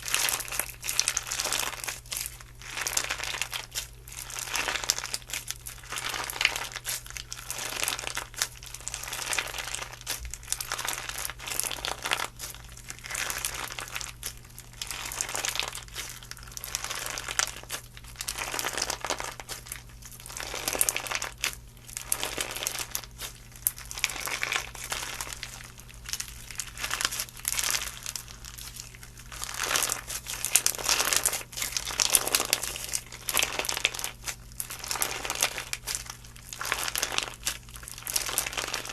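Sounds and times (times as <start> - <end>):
slime crackling: 0.0 - 38.9.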